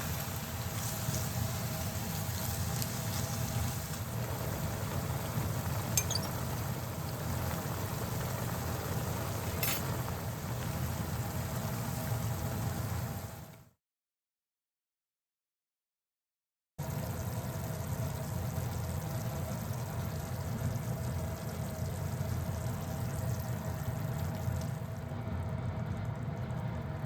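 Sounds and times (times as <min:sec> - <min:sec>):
broth simmering and bubbling: 0:00.0 - 0:13.4, 0:16.8 - 0:27.0
light clinks: 0:06.0 - 0:06.4.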